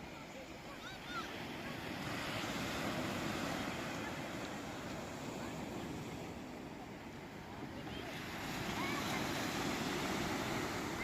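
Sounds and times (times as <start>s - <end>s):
sea waves washing in: 0.0s - 11.0s.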